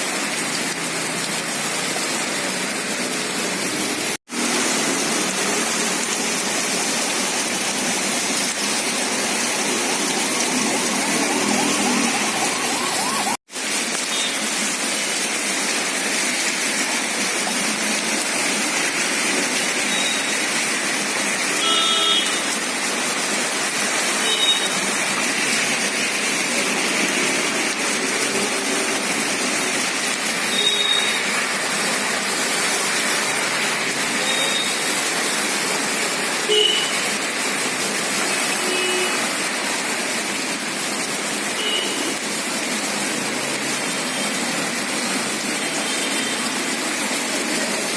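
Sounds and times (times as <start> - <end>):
heavy rain: 0.0 - 47.9
high-pitched tones: 11.4 - 13.4.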